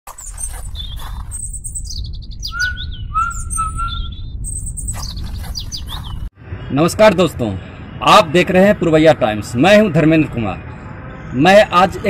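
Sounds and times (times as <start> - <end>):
small birds chirping: 0.1 - 7.0
whistled bird notes: 0.2 - 6.2
steady low rumble: 0.8 - 6.3.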